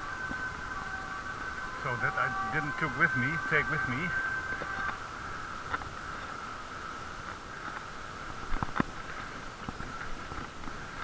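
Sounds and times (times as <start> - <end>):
muffled bicycle riding hum: 0.0 - 11.0.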